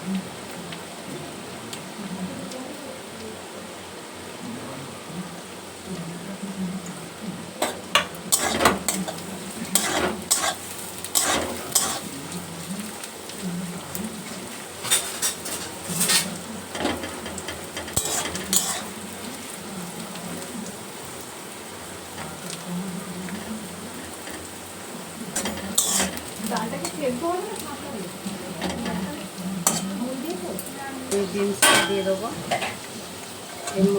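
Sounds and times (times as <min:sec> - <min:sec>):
carrots sizzling in oil: 0:05.5 - 0:33.9
spatula scraping pan: 0:07.6 - 0:12.2, 0:14.8 - 0:19.0, 0:22.2 - 0:27.3, 0:28.2 - 0:30.4, 0:31.2 - 0:33.9.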